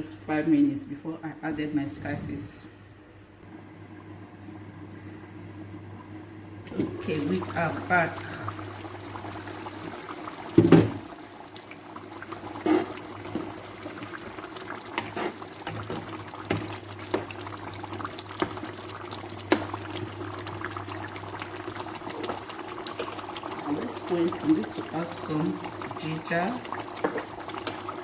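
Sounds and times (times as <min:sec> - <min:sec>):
soup bubbling in a pot: 0:03.4 - 0:28.0
knock: 0:10.6 - 0:11.0.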